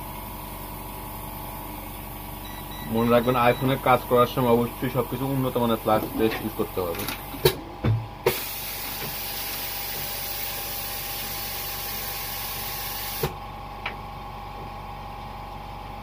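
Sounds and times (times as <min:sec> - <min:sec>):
hot air blower hissing: 0:08.2 - 0:13.4.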